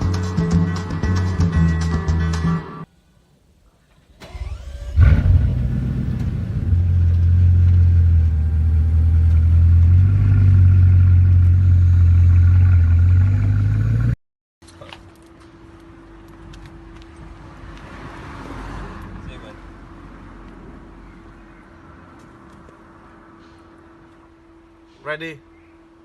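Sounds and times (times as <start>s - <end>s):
car engine starting and idling: 3.8s - 14.2s.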